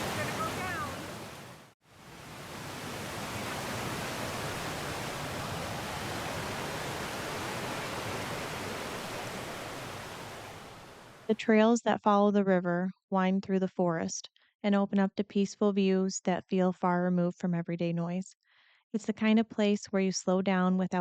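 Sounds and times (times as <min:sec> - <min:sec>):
river pouring over waterfall ledges: 0:00.0 - 0:11.3.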